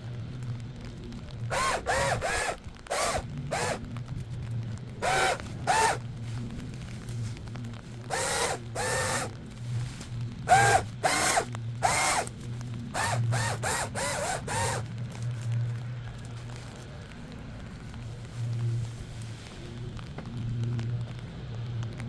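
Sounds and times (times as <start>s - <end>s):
low steady hum: 0.0s - 22.0s
power tool whirring: 1.5s - 3.8s, 5.0s - 6.0s, 8.0s - 9.4s, 10.5s - 14.9s.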